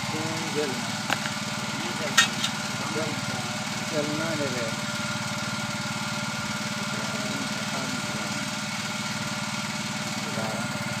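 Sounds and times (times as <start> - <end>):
generator engine running: 0.0 - 11.0
faint voices: 1.6 - 4.8.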